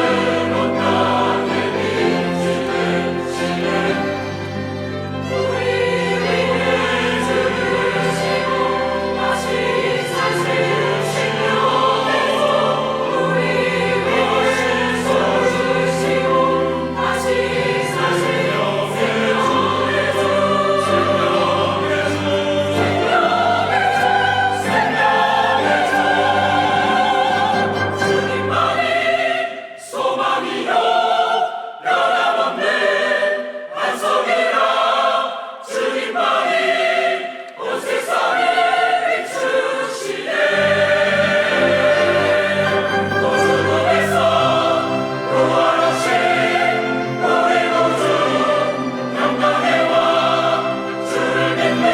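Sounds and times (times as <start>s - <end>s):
instrumental accompaniment: 0.0s - 29.4s, 40.2s - 51.9s
choir singing: 0.0s - 51.9s.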